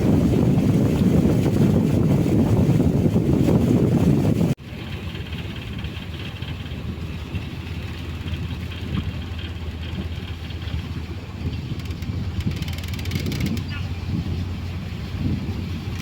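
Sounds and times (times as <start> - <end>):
engine droning: 4.6 - 16.0.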